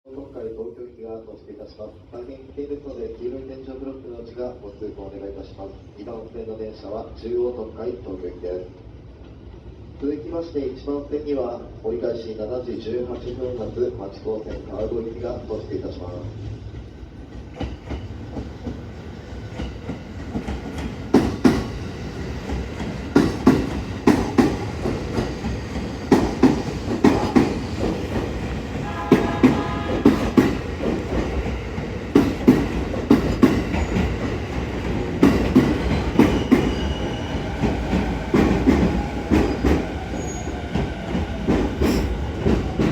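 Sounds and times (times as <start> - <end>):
train running rumble: 16.2 - 42.9
train wheels clacking over rail joints: 16.8 - 42.9.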